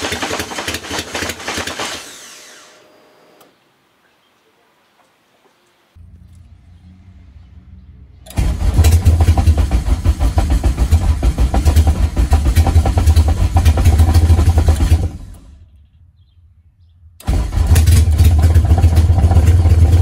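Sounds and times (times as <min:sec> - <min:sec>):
low hum: 0:05.6 - 0:20.0
car engine starting and running: 0:05.9 - 0:15.6, 0:17.2 - 0:20.0.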